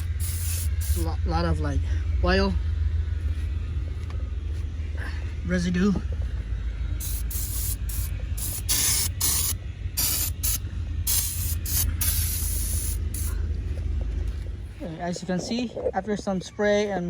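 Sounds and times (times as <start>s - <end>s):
aerosol can spraying: 0.0s - 1.1s, 7.0s - 13.4s.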